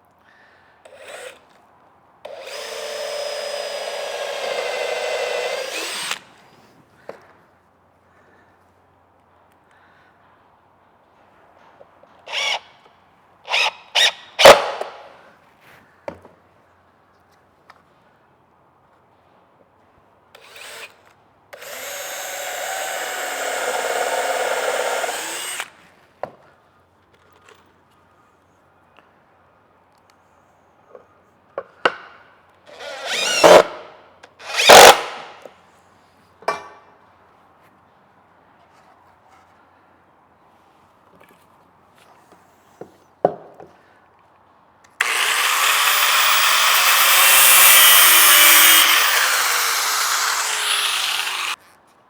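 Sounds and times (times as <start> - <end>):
cordless drill driving screws: 2.3 - 6.3, 12.3 - 12.6, 13.5 - 15.0, 21.6 - 25.7, 32.7 - 33.7, 34.4 - 35.3, 45.0 - 51.6.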